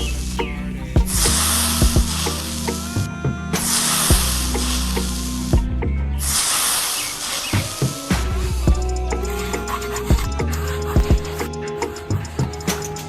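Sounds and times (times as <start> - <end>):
background music with a beat: 0.0 - 6.0, 7.5 - 13.0.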